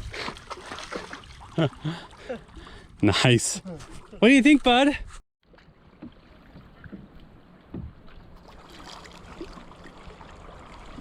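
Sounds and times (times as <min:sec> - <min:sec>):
paddle strokes in water: 0:05.4 - 0:11.0
small knocks on canoe: 0:05.5 - 0:08.2.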